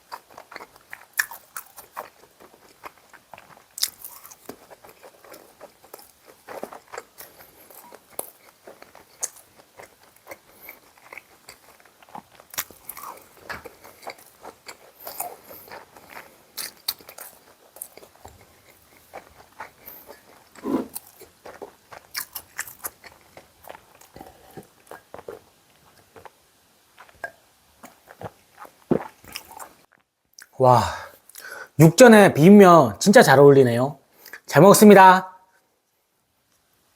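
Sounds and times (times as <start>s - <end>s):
person chewing food: 0.0s - 30.6s.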